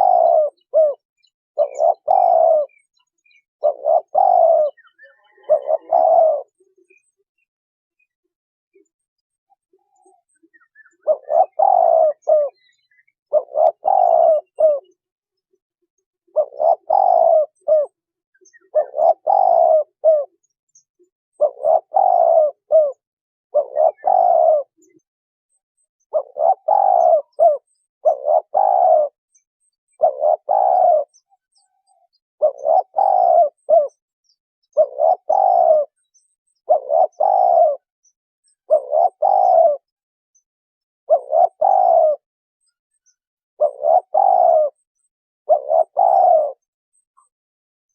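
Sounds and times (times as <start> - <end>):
dove cooing: 0.0 - 1.0, 1.6 - 7.2, 9.6 - 15.0, 16.3 - 20.5, 21.3 - 25.0, 26.1 - 29.2, 29.9 - 34.0, 34.7 - 37.9, 38.6 - 39.9, 41.1 - 42.3, 43.6 - 47.3.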